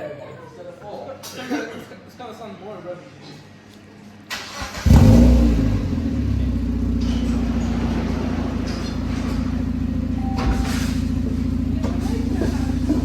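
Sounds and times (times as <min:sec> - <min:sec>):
car engine starting and idling: 0:04.3 - 0:13.0.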